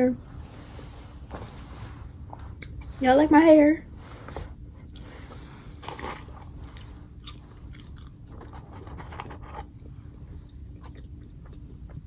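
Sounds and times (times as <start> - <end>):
person chewing crunchy food: 4.3 - 12.0.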